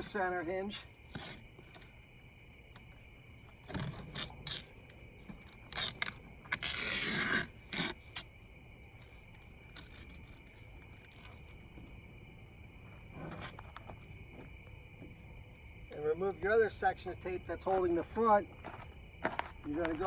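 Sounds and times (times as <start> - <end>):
tape being peeled off: 3.7 - 8.3.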